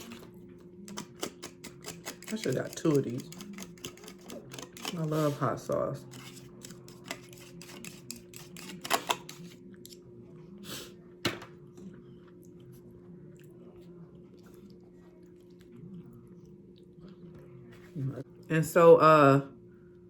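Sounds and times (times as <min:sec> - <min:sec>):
chewing and crunching chips: 0:00.0 - 0:05.4, 0:11.7 - 0:17.6.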